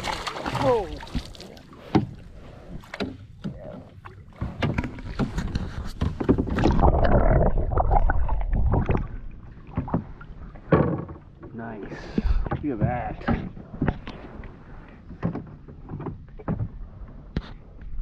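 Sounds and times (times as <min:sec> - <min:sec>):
knocks and scrapes in a canoe: 0:00.0 - 0:07.2, 0:08.6 - 0:18.0
fish thrashing and knocking: 0:02.8 - 0:14.1.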